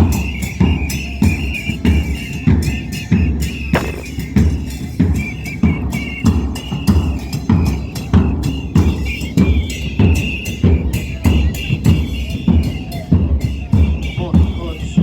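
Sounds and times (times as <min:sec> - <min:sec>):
deep drum beat: 0:03.8 - 0:04.2.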